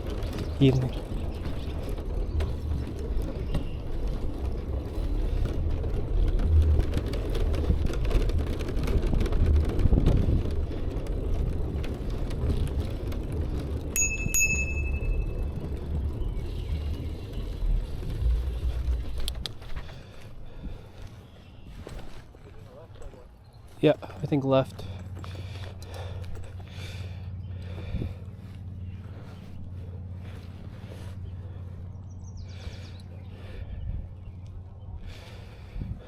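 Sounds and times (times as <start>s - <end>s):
bicycle rolling noise: 0.0s - 36.0s
wind on microphone: 3.4s - 19.9s, 35.6s - 36.0s
bicycle bell ding: 14.0s - 15.3s.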